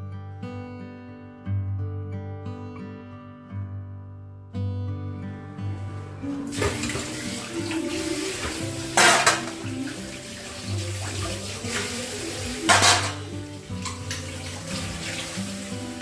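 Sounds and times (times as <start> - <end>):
soft background music: 5.5 - 16.0
loud water splashes: 6.4 - 16.0
tap water running into sink: 6.4 - 16.0.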